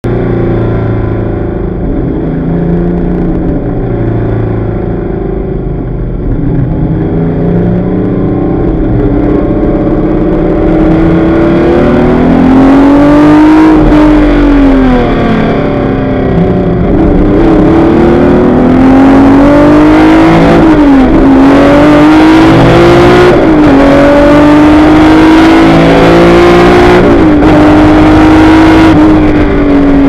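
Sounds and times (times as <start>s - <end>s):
race car engine accelerating: 6.2s - 30.0s.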